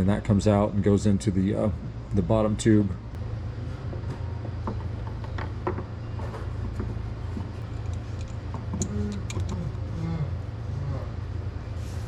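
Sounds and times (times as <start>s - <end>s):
parts clicking and knocking: 6.7s - 9.8s.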